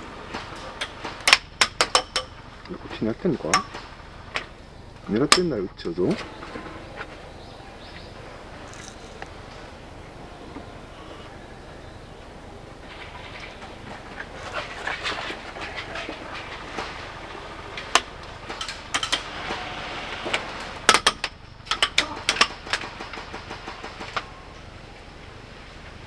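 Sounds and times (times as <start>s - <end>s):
airsoft guns firing: 22.0s - 24.4s.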